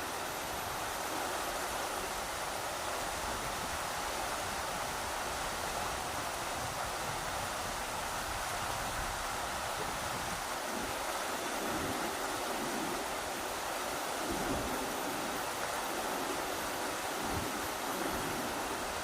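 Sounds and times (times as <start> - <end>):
river water rushing over rocks: 0.0 - 19.0
wind buffeting microphone: 3.1 - 19.0.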